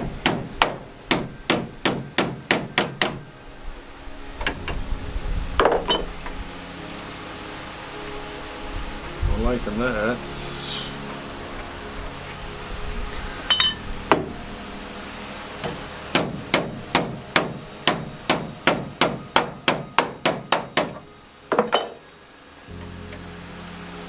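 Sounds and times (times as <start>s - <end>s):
hammer striking sheet metal: 0.0s - 3.2s, 15.6s - 21.0s.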